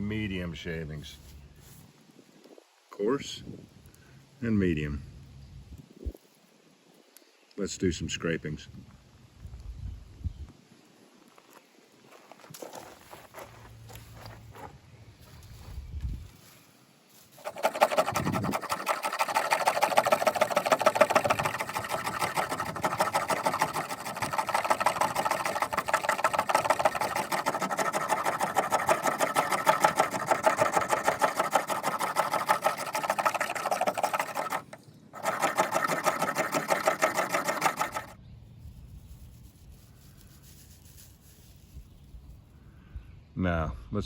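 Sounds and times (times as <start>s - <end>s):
knife spine scraping wood: 17.4s - 38.2s.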